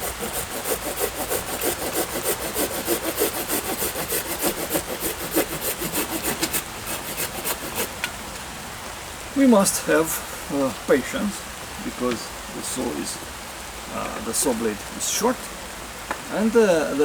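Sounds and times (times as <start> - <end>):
hand saw cutting branch: 0.0 - 8.2.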